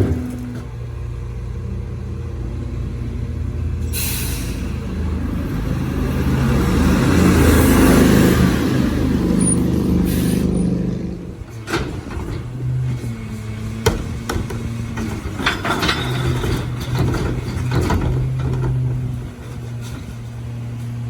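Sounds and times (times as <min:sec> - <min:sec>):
truck engine running: 0:00.0 - 0:21.0
air brake hiss: 0:03.9 - 0:04.8, 0:10.1 - 0:10.6.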